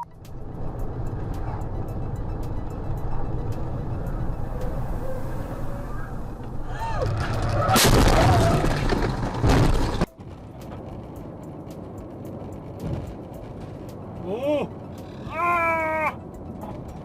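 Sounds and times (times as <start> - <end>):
bang: 7.0 - 10.1
car crash impact: 7.0 - 10.1
metal crunching: 7.0 - 11.0.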